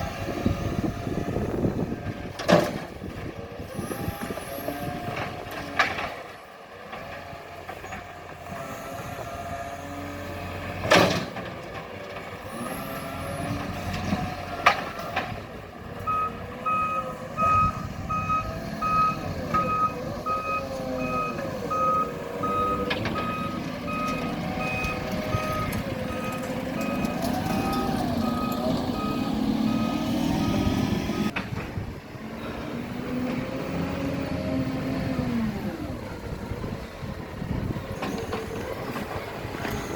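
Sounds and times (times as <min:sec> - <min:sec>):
garbage truck engine running: 0:00.0 - 0:39.9
reversing alarm beeps: 0:16.1 - 0:30.8.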